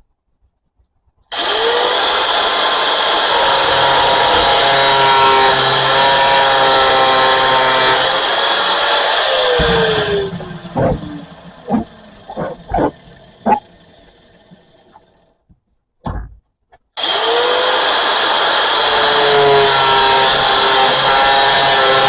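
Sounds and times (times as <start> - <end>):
angle grinder cutting pipe: 1.3 - 15.2, 17.0 - 22.0
grinder disc spinning down: 1.3 - 15.2.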